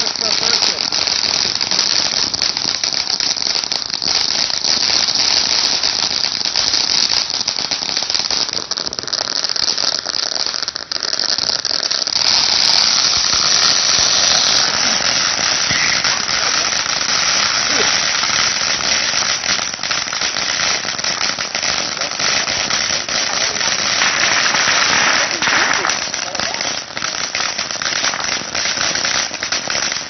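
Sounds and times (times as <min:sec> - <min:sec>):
firework crackling and hissing: 0:00.0 - 0:30.0.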